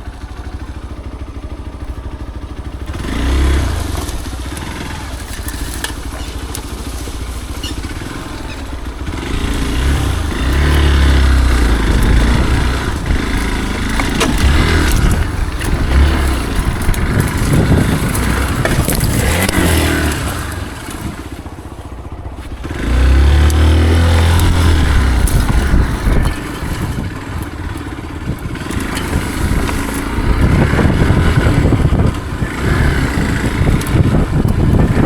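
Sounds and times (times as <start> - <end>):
motorcycle engine revving: 0.0 - 35.0
clicks and rattles: 3.8 - 22.6, 23.4 - 32.3.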